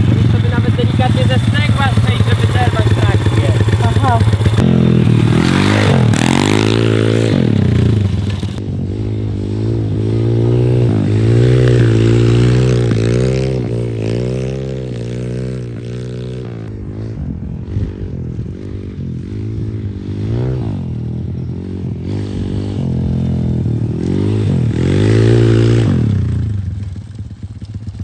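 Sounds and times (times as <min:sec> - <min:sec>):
small motorbike engine revving: 0:00.0 - 0:27.0.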